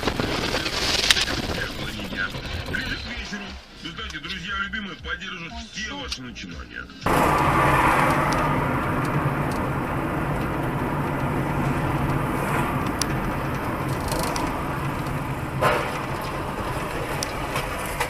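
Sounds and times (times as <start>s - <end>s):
road noise: 7.0s - 18.0s
car engine hum: 7.1s - 18.0s.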